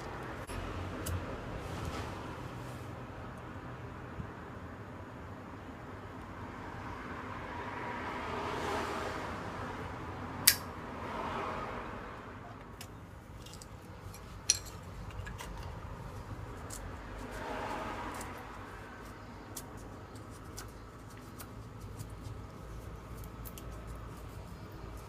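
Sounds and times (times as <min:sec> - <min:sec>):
metal camp gear clinking: 0:13.4 - 0:15.8.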